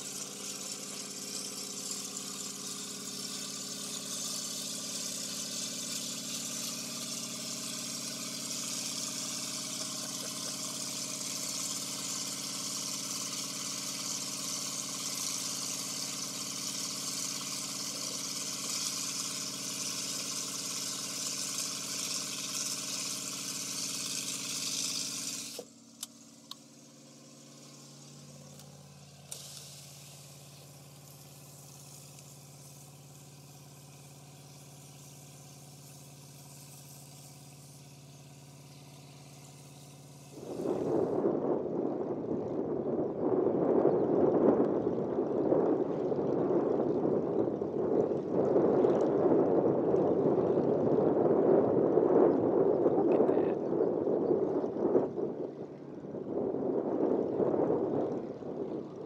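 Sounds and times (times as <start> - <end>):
high hiss: 0.0 - 41.1
vehicle engine idling: 0.0 - 41.1.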